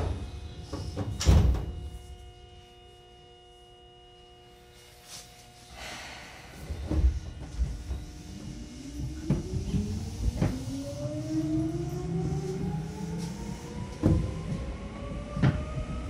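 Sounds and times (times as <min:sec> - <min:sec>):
train doors shutting with thud: 0:00.0 - 0:01.9, 0:05.8 - 0:10.8
steady multi-tone hum: 0:00.0 - 0:16.0
rush of noise: 0:05.8 - 0:07.4.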